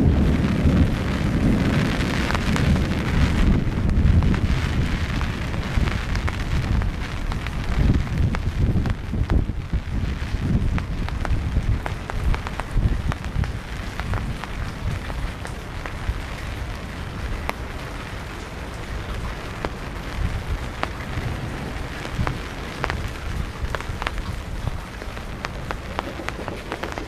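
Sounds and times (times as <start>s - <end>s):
raindrops ticking on surface: 0.0s - 27.0s
steady rain falling: 0.0s - 27.0s
low rumble: 18.6s - 27.0s.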